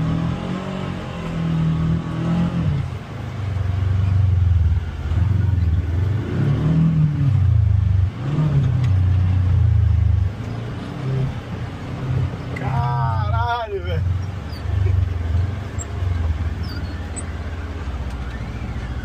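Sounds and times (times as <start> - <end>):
utility vehicle engine revving: 0.0 - 19.0.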